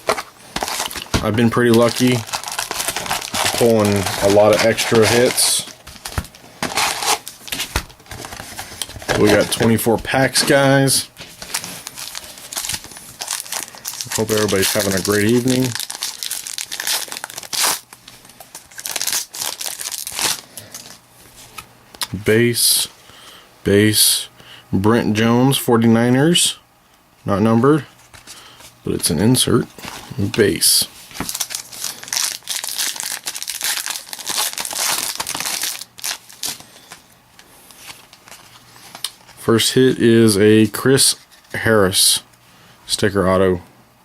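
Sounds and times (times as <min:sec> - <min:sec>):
wrapper crinkling and tearing: 0:00.0 - 0:10.5, 0:11.2 - 0:21.0, 0:29.8 - 0:37.0, 0:37.7 - 0:39.3.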